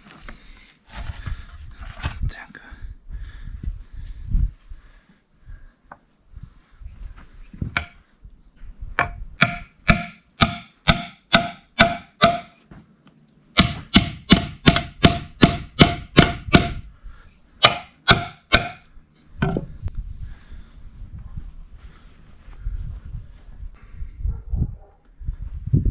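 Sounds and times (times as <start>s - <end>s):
hammer blows on metal: 9.0s - 12.6s, 13.6s - 16.9s, 17.6s - 18.9s.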